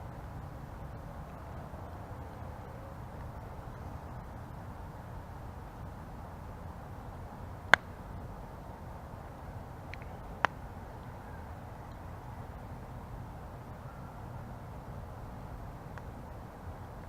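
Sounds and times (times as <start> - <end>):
campfire burning: 0.0 - 13.5.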